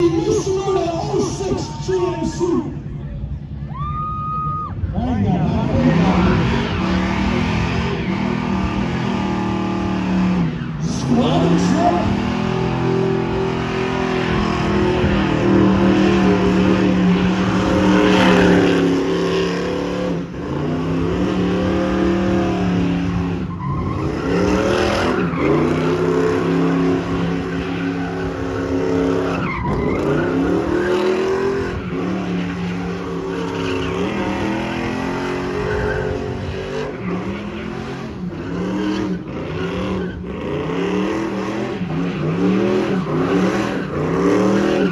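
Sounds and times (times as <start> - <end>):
truck engine at high revs: 5.0 - 44.9
tyres squealing on pavement: 22.2 - 40.4, 41.8 - 44.9.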